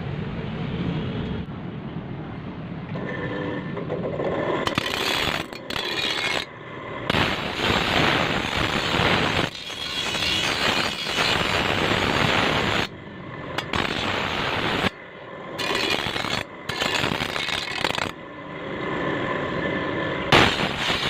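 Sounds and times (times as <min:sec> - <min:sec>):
harsh metalworking noise: 0:04.5 - 0:06.5, 0:07.1 - 0:13.0, 0:13.6 - 0:15.0, 0:15.6 - 0:18.2, 0:20.3 - 0:21.0.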